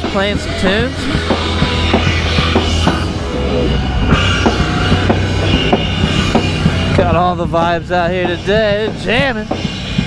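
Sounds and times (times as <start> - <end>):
bass line: 0.0 - 9.7
drum kit beating: 0.0 - 10.0
live rock band: 0.0 - 10.0.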